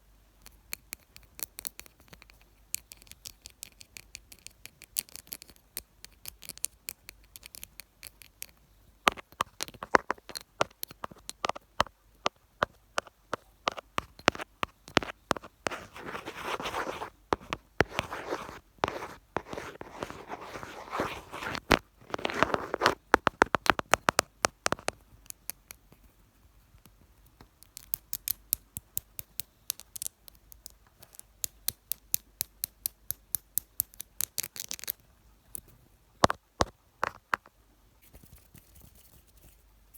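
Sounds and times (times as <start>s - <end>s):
rubbing and scratching on microphone: 13.3s - 25.0s, 38.0s - 39.7s.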